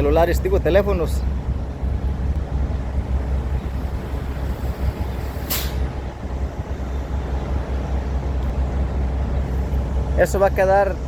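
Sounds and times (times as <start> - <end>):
low outdoor rumble: 0.0 - 11.0
short sharp hiss: 3.6 - 6.2.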